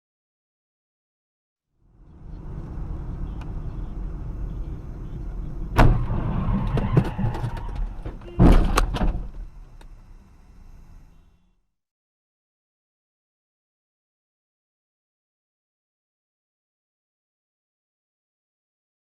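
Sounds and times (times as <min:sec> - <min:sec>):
car rumbling: 0:01.8 - 0:11.5
loud crash impact: 0:05.8 - 0:07.3.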